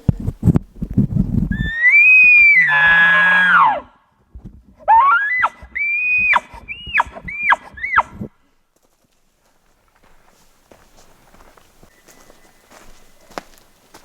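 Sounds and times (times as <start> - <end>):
elk bugling: 1.5 - 4.0, 4.8 - 8.3.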